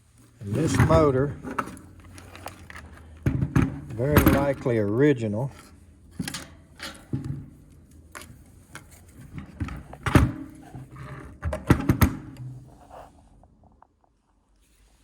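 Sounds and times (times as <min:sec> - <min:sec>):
metal clunks and knocks: 0:03.2 - 0:04.8.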